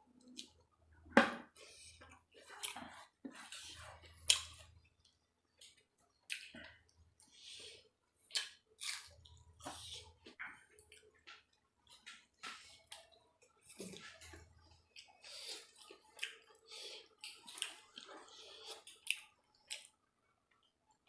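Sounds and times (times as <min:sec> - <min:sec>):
wet chewing: 0:01.8 - 0:20.8.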